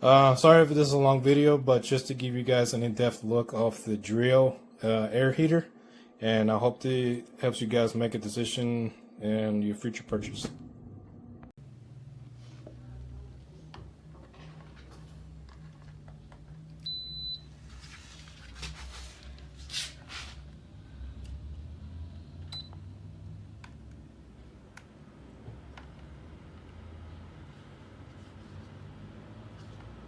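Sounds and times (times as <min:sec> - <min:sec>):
low steady hum: 0:00.0 - 0:30.0
space heater electronic beep: 0:16.8 - 0:17.7
rustling: 0:17.6 - 0:20.4.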